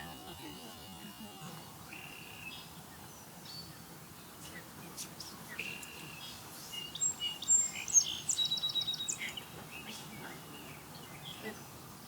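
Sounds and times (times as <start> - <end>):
birds whistling: 5.5 - 11.4.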